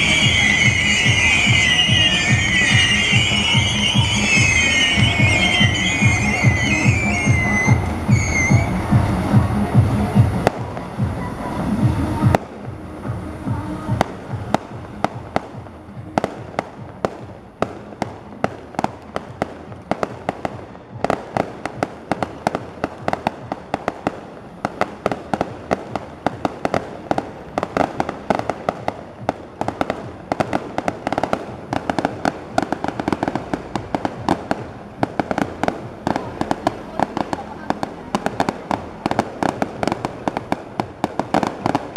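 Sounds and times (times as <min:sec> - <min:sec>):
fireworks bangs: 0:00.0 - 0:41.9.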